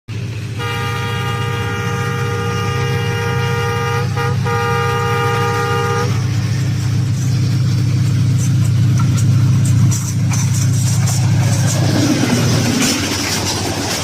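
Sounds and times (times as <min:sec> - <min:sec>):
steady low rumble: 0:00.1 - 0:14.0
train horn blast: 0:00.6 - 0:06.4.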